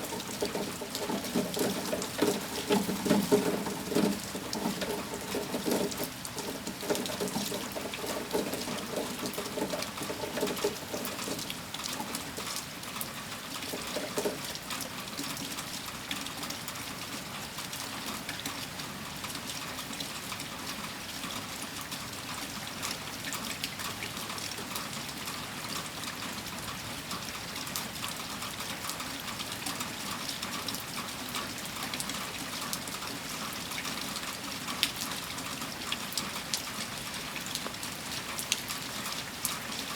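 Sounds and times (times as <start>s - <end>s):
water running and trickling: 0.0s - 18.8s
heavy rain patter: 0.0s - 39.9s.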